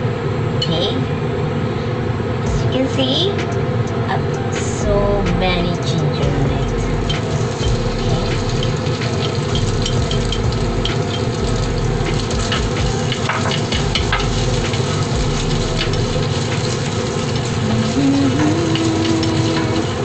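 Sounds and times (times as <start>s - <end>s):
kitchen exhaust fan humming: 0.0s - 20.0s
ginger sizzling in oil: 6.6s - 20.0s.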